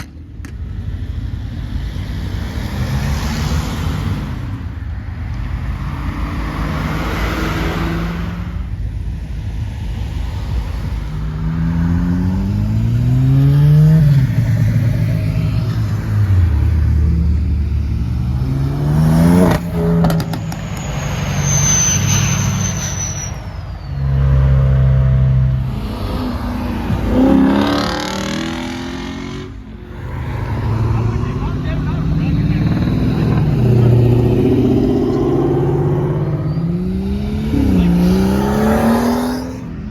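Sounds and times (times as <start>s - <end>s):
car engine revving: 1.6s - 8.8s, 10.4s - 21.6s, 24.2s - 39.9s.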